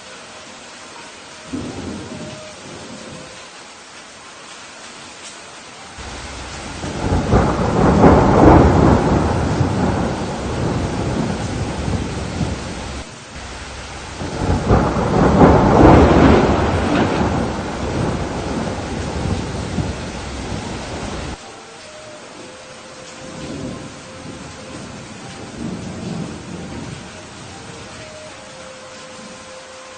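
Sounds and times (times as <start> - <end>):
steady rain: 0.0 - 29.9
thunder rumbling: 1.5 - 3.4, 6.0 - 21.4, 22.4 - 28.6.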